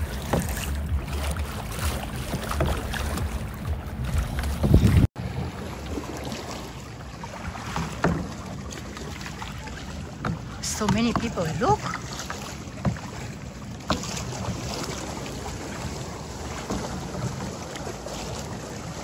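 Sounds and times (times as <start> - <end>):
wind buffeting microphone: 0.0 - 6.2
sea water: 0.0 - 19.0.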